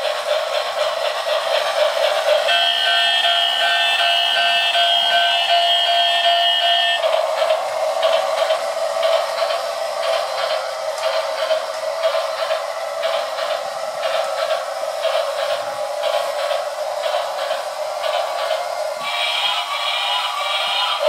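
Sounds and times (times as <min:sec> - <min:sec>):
toy train running: 0:00.0 - 0:21.0
track clicks: 0:00.0 - 0:21.0
toy train whistle: 0:02.4 - 0:07.3, 0:19.0 - 0:21.0.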